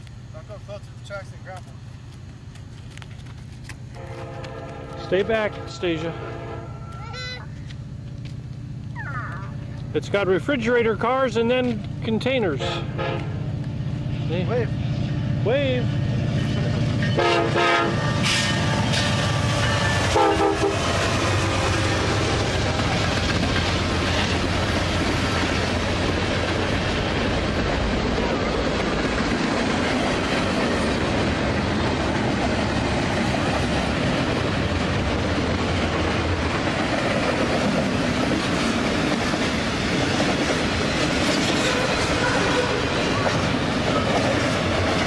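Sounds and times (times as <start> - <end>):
steel wheels on rails: 0.0 - 45.0.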